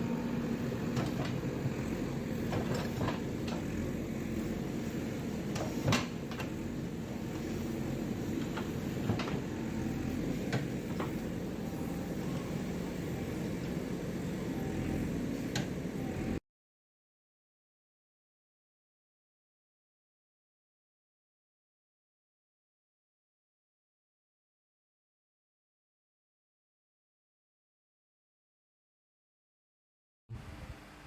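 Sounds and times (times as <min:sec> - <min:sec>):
excavator diesel engine running: 0:00.0 - 0:16.4
knocks and clanks in soil: 0:00.8 - 0:01.8, 0:02.4 - 0:03.8, 0:05.4 - 0:06.6, 0:08.4 - 0:09.6.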